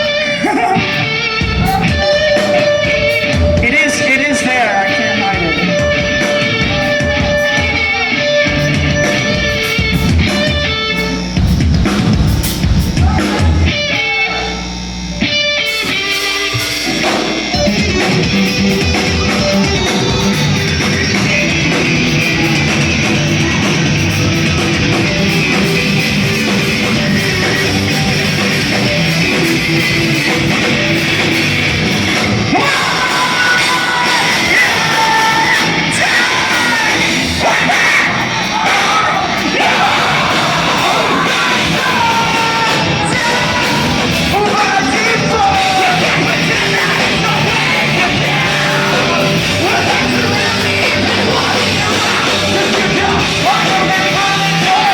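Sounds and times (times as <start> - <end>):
person yelling and singing: 0.0 - 9.6, 12.9 - 14.7, 17.7 - 26.1, 32.5 - 54.9
electric guitars: 0.0 - 54.9
rock band playing live: 0.0 - 54.9.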